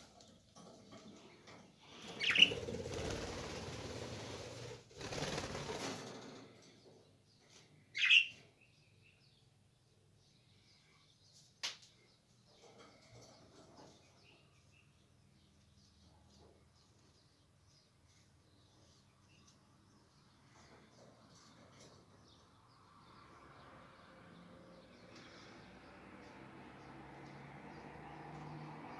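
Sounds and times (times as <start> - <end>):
parrots flapping wings: 2.1 - 6.4
parrot chirps: 8.0 - 8.4.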